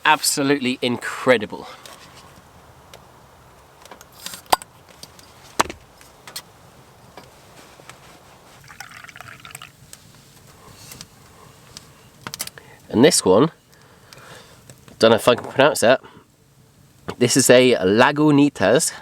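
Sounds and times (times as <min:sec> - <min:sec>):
liquid pouring and sloshing: 0:08.6 - 0:09.8.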